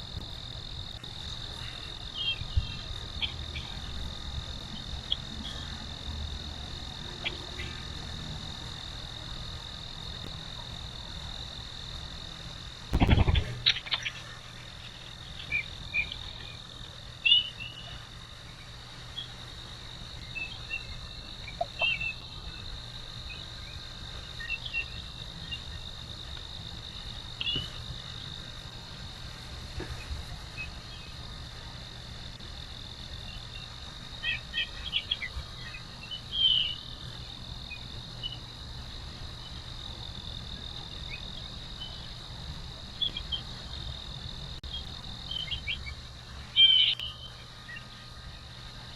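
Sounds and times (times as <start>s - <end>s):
insect chorus drone: 0.0s - 48.9s
bird chirps: 1.2s - 3.9s, 17.2s - 18.0s, 20.2s - 22.7s, 34.2s - 37.0s, 44.7s - 47.9s.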